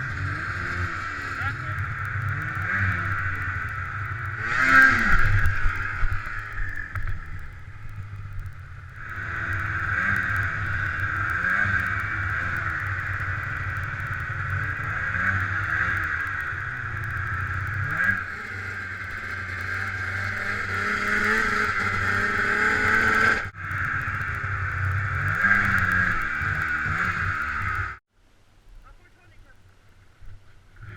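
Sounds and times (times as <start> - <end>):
snowmobile engine revving: 0.0 - 28.0.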